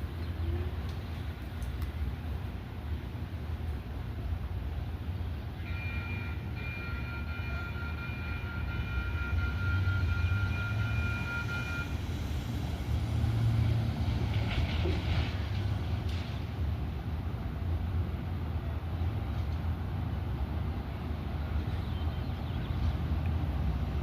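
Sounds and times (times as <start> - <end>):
light rail train rumbling: 0.0 - 24.0
high ringing tone: 5.6 - 12.0.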